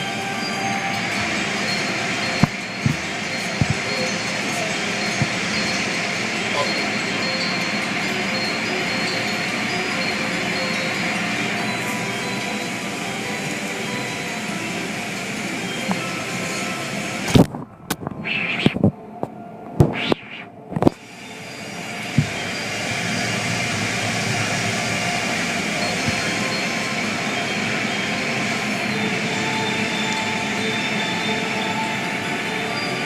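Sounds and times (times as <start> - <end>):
car wash machinery running: 0.0 - 18.0, 20.6 - 33.0
sharp knocks: 2.4 - 3.9.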